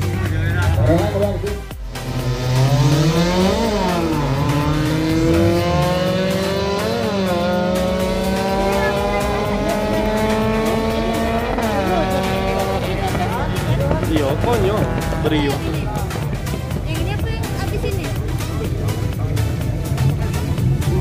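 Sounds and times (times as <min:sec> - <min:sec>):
car engine accelerating through gears: 0:00.6 - 0:17.2.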